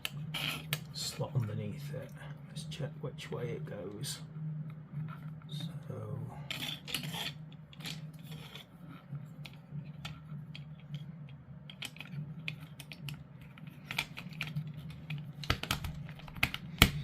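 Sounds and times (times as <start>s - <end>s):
low steady hum: 0.0s - 17.0s
plastic parts clicking: 11.7s - 17.0s
sharp plastic snaps: 15.4s - 17.0s.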